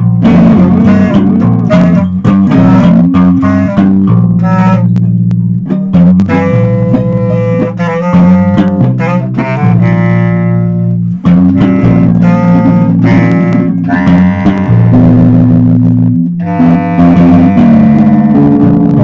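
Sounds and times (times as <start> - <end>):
electric guitar plucking and strumming: 0.0 - 19.0
held low bass notes: 0.0 - 19.0.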